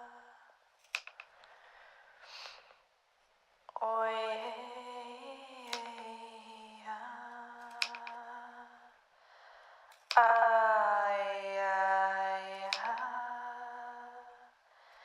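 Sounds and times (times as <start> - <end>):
small clicks: 0.8 - 1.6, 5.6 - 6.2, 7.6 - 8.4, 9.9 - 10.6, 12.5 - 13.2
breath in: 1.3 - 2.8, 9.2 - 10.0, 14.7 - 15.0.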